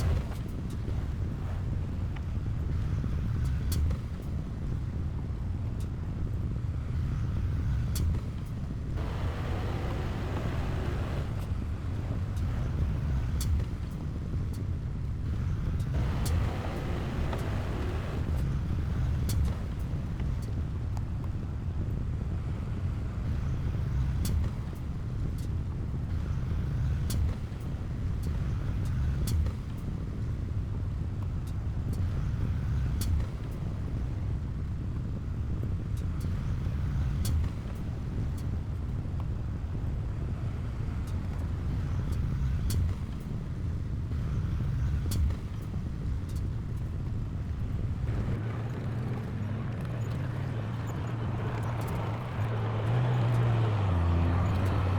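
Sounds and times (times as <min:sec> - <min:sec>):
diesel machinery rumbling: 0:06.9 - 0:20.9, 0:39.7 - 0:54.9.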